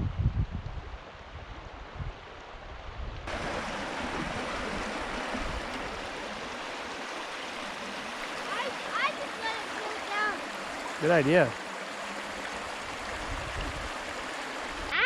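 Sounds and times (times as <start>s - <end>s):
wind rumble on microphone: 0.0s - 6.6s, 12.8s - 14.9s
river water rushing: 3.3s - 15.0s.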